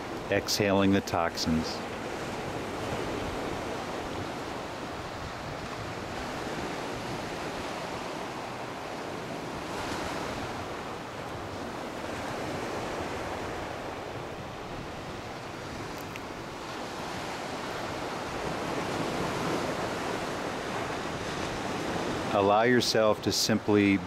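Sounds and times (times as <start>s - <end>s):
waves breaking on beach: 0.0s - 24.0s.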